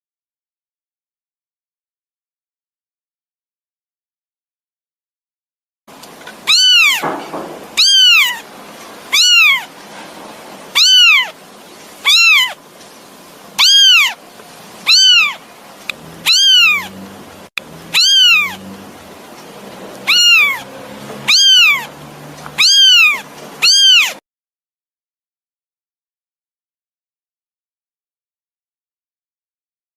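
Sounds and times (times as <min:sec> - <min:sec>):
kitten meowing: 0:06.4 - 0:08.5, 0:09.1 - 0:09.7, 0:10.7 - 0:11.4, 0:12.0 - 0:12.6, 0:13.6 - 0:14.2, 0:14.8 - 0:17.0, 0:17.9 - 0:18.7, 0:20.0 - 0:21.9, 0:22.5 - 0:24.2.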